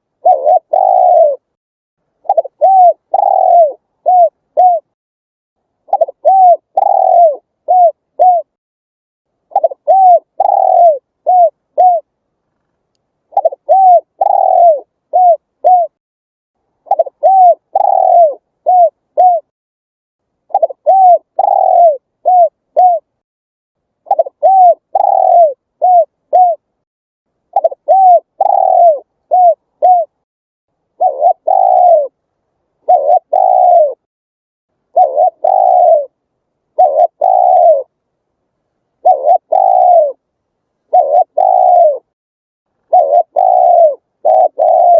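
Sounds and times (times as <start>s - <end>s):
dove cooing: 0.0s - 1.6s, 2.2s - 5.0s, 5.9s - 8.6s, 9.5s - 12.1s, 13.3s - 16.0s, 16.8s - 19.5s, 20.5s - 23.1s, 24.0s - 26.7s, 27.5s - 30.2s, 31.0s - 32.2s, 32.8s - 34.1s, 34.9s - 38.0s, 39.0s - 40.2s, 40.9s - 42.2s, 42.9s - 44.9s.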